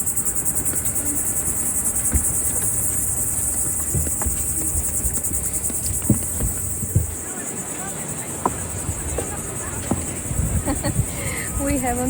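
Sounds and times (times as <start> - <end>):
insect chorus chirring: 0.0 - 12.0
soft low thumps: 0.5 - 7.3.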